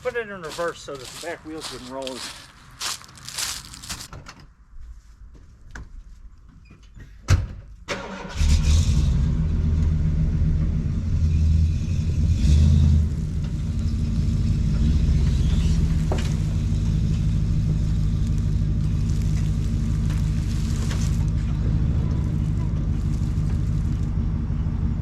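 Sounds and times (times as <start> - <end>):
vehicle engine starting and revving: 7.9 - 25.0.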